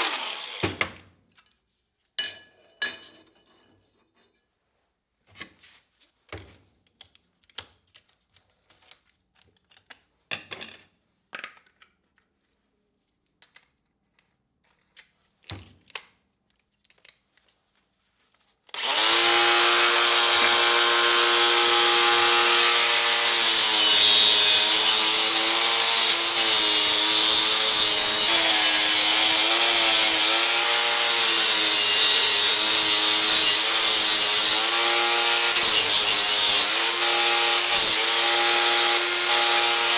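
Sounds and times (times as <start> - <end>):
angle grinder on sheet steel: 0.0 - 0.8, 18.8 - 39.9.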